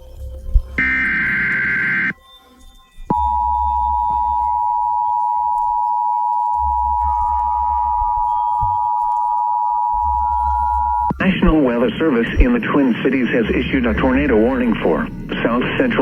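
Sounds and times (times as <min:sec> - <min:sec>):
two-tone attention signal: 0:00.8 - 0:02.2, 0:03.1 - 0:12.7
screechy digital data header: 0:00.8 - 0:16.0.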